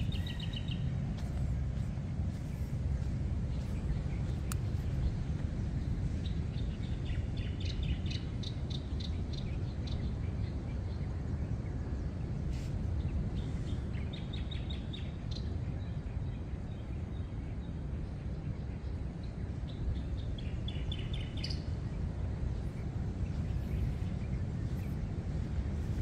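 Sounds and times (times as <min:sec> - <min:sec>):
birds chirping: 0:00.0 - 0:05.2
low outdoor rumble: 0:00.0 - 0:26.0.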